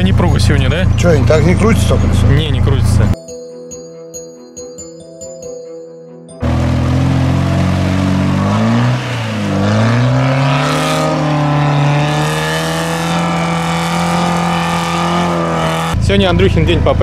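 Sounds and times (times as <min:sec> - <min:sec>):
engine revving hard: 0:06.4 - 0:16.0.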